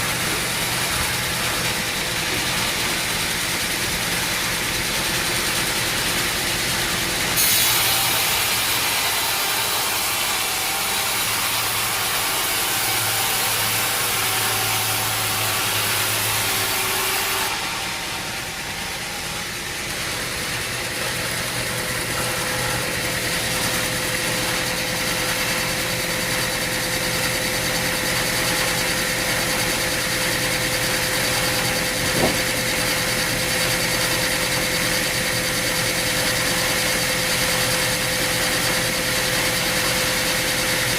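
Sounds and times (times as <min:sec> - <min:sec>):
sawmill machinery drone: 0:00.0 - 0:40.9
sharp knock: 0:31.9 - 0:32.6.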